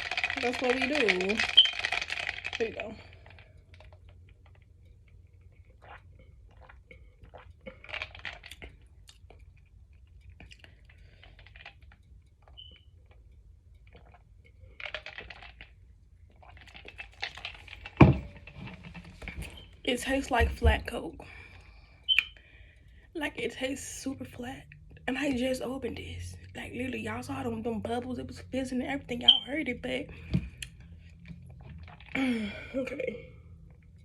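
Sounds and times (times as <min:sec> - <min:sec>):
mouth clicks and smacks: 0:05.5 - 0:13.2, 0:22.1 - 0:22.4, 0:30.2 - 0:32.2.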